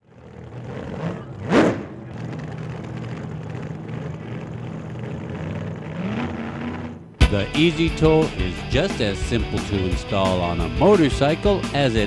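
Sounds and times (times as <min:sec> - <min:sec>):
motorcycle engine revving: 0:00.1 - 0:08.5.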